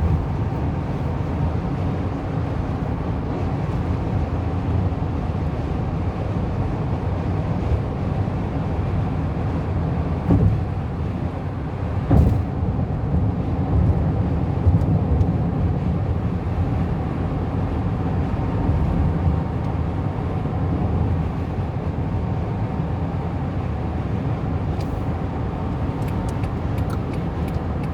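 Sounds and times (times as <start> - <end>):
car road and engine rumble: 0.0 - 27.9.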